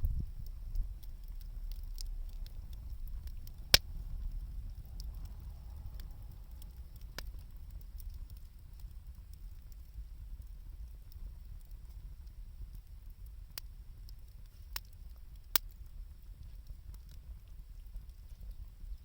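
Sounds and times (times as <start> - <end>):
campfire crackling: 0.0 - 19.0
sharp pop of fire: 3.2 - 4.0.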